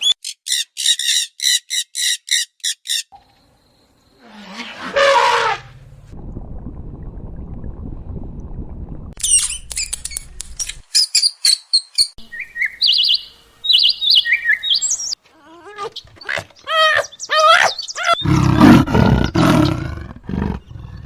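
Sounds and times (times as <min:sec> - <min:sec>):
loud harsh animal call: 0:04.2 - 0:05.7, 0:15.4 - 0:19.8
low rumbling noise: 0:05.7 - 0:09.2
small birds chirping trills: 0:09.3 - 0:18.8.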